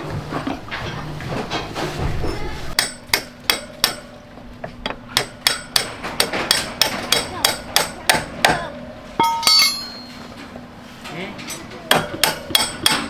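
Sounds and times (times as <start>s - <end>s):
hammer blows on metal: 4.8s - 10.3s.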